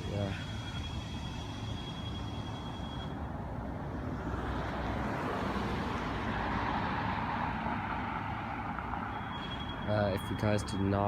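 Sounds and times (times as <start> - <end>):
road noise: 0.0 - 11.0
vehicle engine rumble: 0.0 - 11.0.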